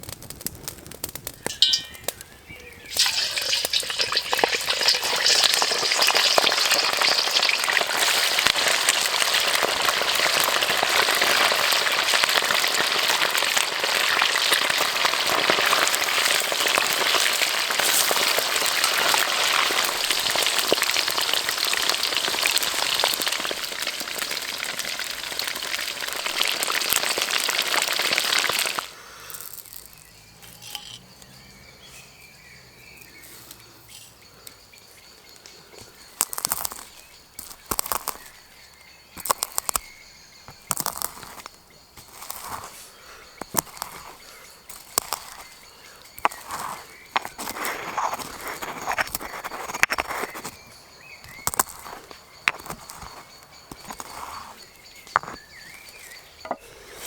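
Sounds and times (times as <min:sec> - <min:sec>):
food deep-frying in hot oil: 0:00.0 - 0:31.0, 0:36.2 - 0:42.7.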